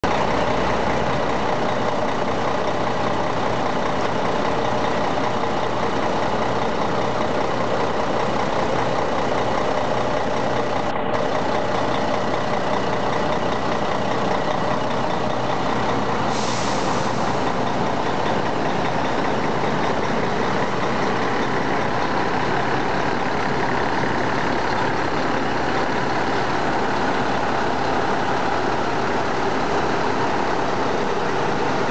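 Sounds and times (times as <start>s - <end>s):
diesel engine running steadily: 0.0s - 31.9s
short hiss: 16.3s - 17.5s.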